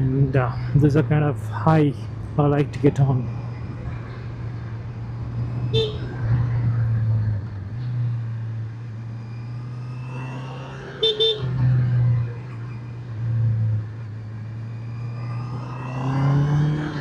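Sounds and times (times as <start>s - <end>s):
horn toots: 5.7s - 6.1s, 11.0s - 11.6s.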